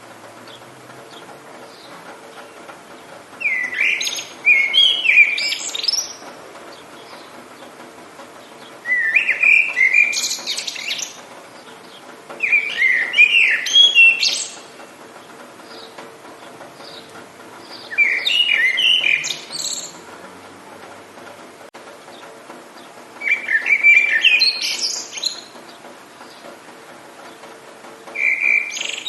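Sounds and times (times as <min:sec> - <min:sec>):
rain hiss: 0:00.0 - 0:29.0
songbird chirping and whistling: 0:03.4 - 0:06.2, 0:08.6 - 0:11.2, 0:12.4 - 0:14.7, 0:16.8 - 0:20.0, 0:23.2 - 0:25.5, 0:28.1 - 0:29.0.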